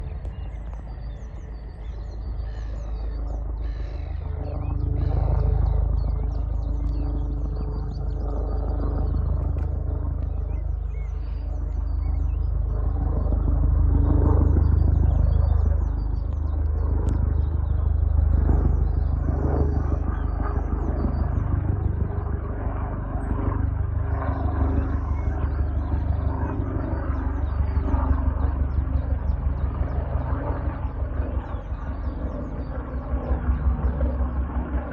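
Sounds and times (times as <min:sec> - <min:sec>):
small birds chirping: 0:00.0 - 0:22.4
helicopter flying overhead: 0:00.0 - 0:34.9.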